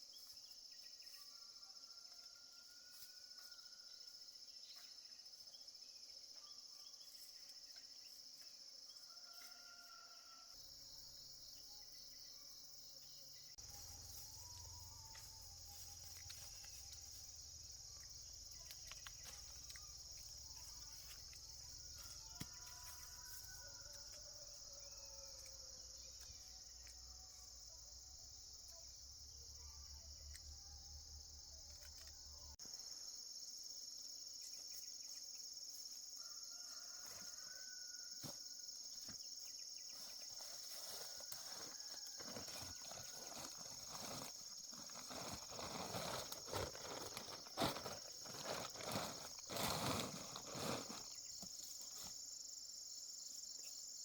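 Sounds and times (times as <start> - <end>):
insects singing: 13.1 - 54.0.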